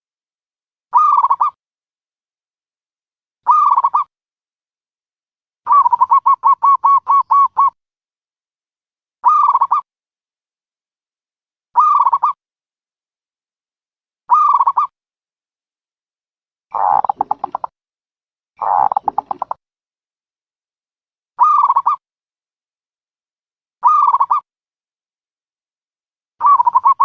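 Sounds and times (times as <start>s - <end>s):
dove cooing: 5.7s - 7.8s, 16.7s - 17.7s, 18.6s - 19.6s, 26.4s - 27.0s.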